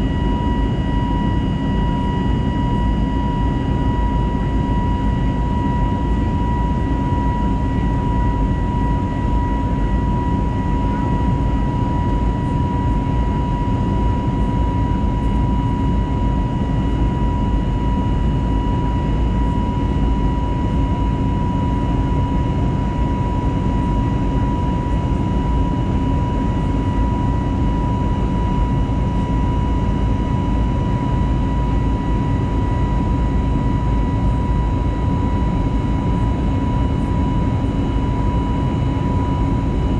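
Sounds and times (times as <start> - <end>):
aircraft engine and airflow rush: 0.0 - 39.9
thin steady high whine: 0.0 - 39.9.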